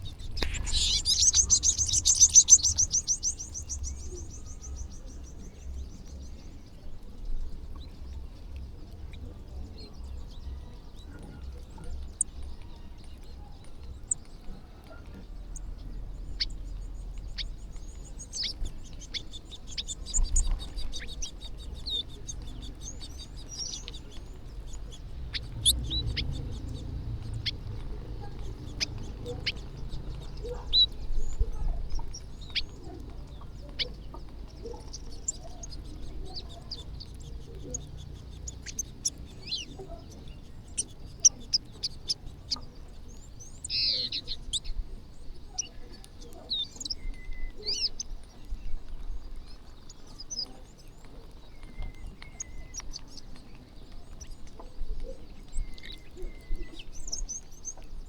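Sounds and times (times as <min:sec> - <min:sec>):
low steady rumble: 0:00.0 - 0:46.4
flock of birds chirping: 0:00.0 - 0:58.0.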